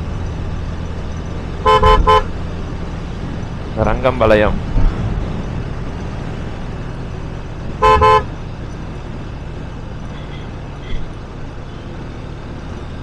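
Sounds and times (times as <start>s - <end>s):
moving vehicle and road noise: 0.0s - 13.0s
vehicle horn double toot: 1.6s - 2.3s, 7.8s - 8.3s.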